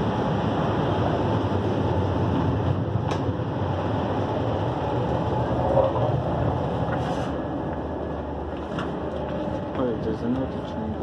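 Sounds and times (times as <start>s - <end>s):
train rumble and rush: 0.0s - 11.0s.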